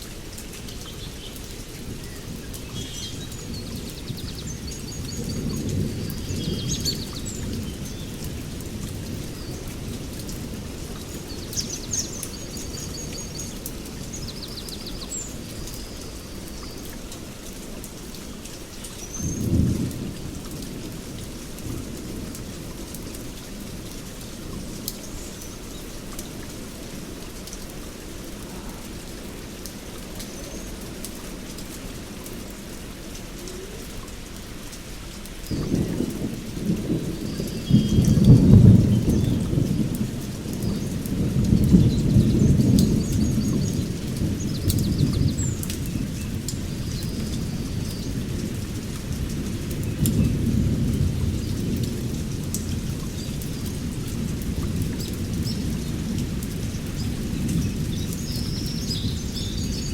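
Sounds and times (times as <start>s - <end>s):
steady rain: 0.0s - 59.9s
thunder rumbling: 35.5s - 59.9s.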